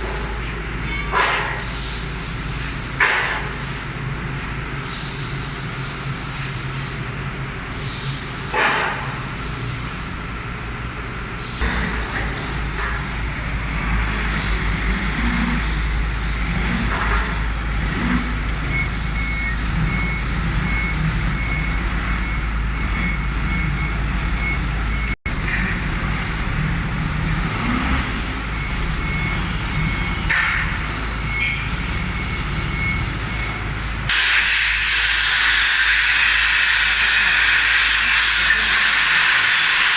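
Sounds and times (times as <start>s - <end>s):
heavy vehicle engine running: 0.0s - 39.9s
air hissing: 1.4s - 3.9s, 4.8s - 7.0s, 7.7s - 10.2s, 11.3s - 13.4s, 34.1s - 39.9s
reversing alarm beeping: 14.4s - 25.2s, 27.6s - 33.8s.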